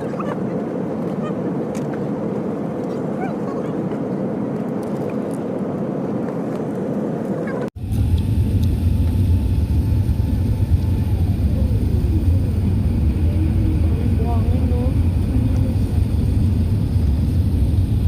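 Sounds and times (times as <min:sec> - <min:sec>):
vehicle rumble from inside: 0:00.0 - 0:18.0
steady noisy hum: 0:07.8 - 0:18.0.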